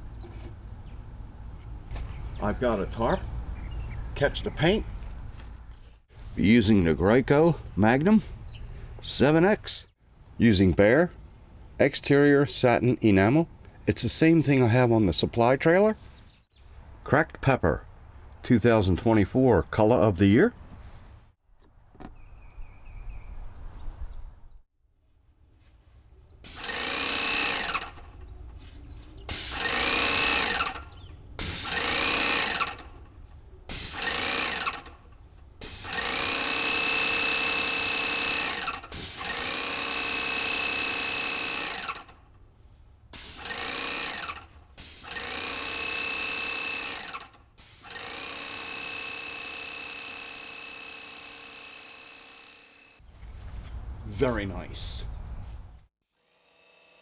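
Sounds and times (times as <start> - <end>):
paint sprayer hissing: 26.4 - 28.2, 29.3 - 42.1, 43.2 - 52.8
pump motor whine: 26.4 - 28.2, 29.4 - 33.0, 33.7 - 35.0, 35.6 - 42.2, 43.2 - 53.0.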